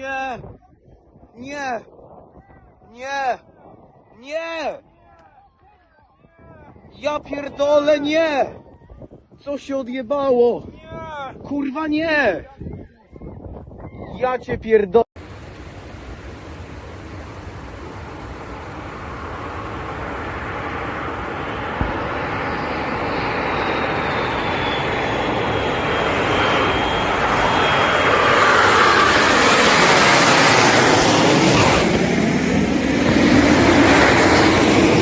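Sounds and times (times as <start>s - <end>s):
high engine whine: 15.2s - 35.0s
jet engine roar: 15.2s - 35.0s.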